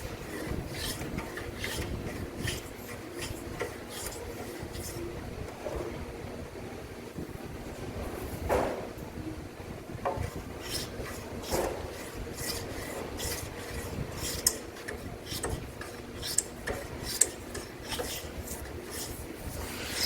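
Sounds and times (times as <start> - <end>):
hand tool scraping wood: 0.0 - 5.0, 10.2 - 20.0.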